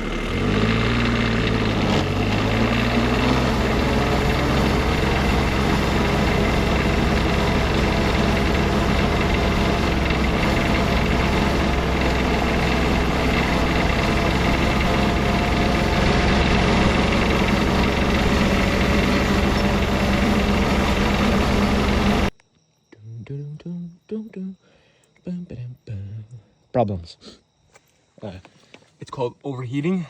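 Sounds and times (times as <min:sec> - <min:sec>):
small diesel engine running: 0:00.0 - 0:22.3.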